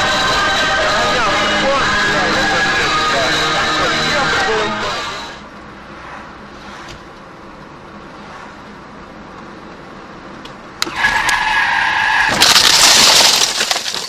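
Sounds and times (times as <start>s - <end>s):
harsh skidding rush: 0.0s - 10.1s, 10.7s - 14.0s
car road noise: 0.0s - 14.0s
tyres squealing under braking: 10.8s - 13.5s.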